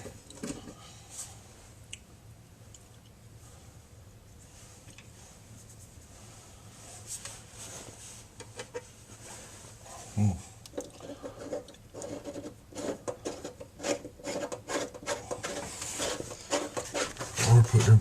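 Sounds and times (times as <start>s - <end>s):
rubbing and scraping strokes: 4.4s - 10.2s, 10.8s - 18.0s.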